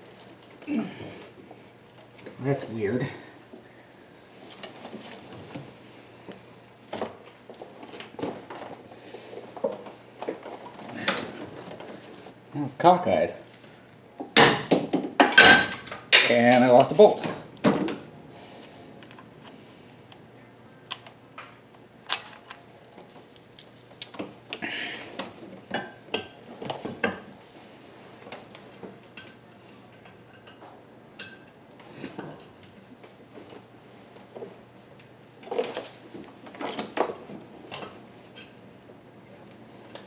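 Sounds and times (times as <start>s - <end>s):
metal tools clinking and clanking: 22.1s - 22.6s.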